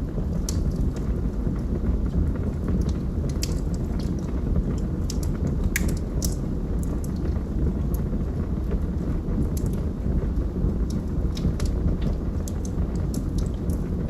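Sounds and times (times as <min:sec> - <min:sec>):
log fire crackling: 0:00.0 - 0:14.0
wood popping and snapping: 0:00.3 - 0:01.0, 0:02.8 - 0:07.3, 0:10.9 - 0:13.9.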